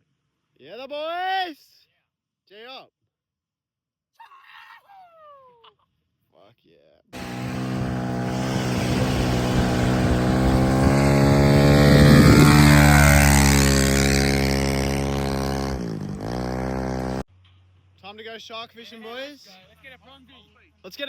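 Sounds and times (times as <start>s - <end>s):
engine droning past: 7.2s - 17.2s.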